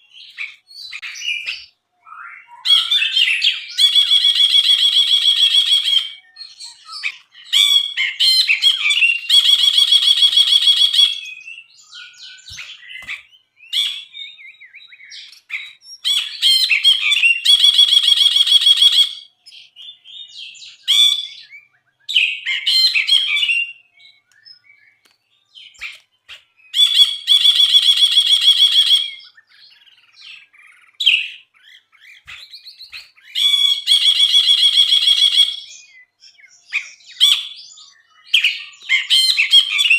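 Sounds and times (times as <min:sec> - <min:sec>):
bird chirping and whistling: 0:00.0 - 0:39.9.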